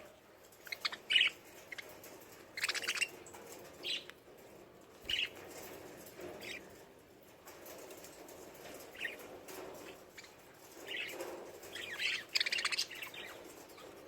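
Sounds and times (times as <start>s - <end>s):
lovebirds chirping: 10.2s - 13.9s.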